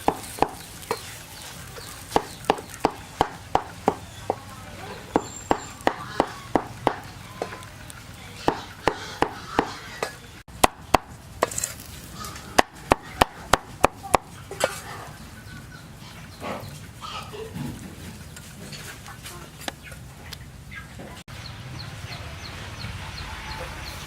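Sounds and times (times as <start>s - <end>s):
chickens clucking: 0.0s - 11.2s, 11.9s - 24.0s
knife chopping on cutting board: 8.5s - 9.8s.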